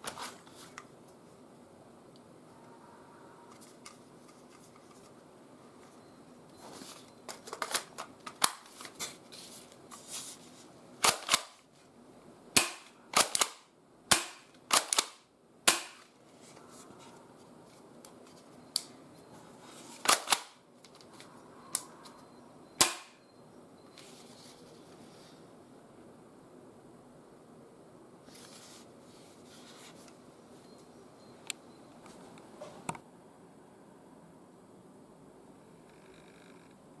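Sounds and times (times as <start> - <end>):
airsoft shotgun firing: 12.6 - 16.0, 22.8 - 23.2.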